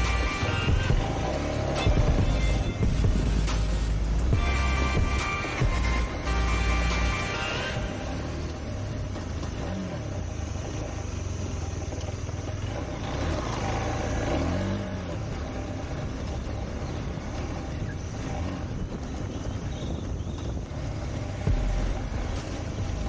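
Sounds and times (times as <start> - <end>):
music track: 0.0 - 9.0, 20.7 - 23.0
motorcycle engine revving: 0.0 - 23.0
wind and road noise: 0.0 - 23.0.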